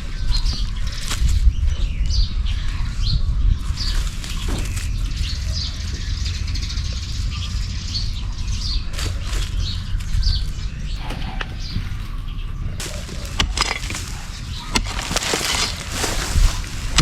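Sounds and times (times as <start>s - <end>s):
small birds chirping: 0.0s - 17.0s
clicks and knocks from handling things: 12.8s - 16.2s.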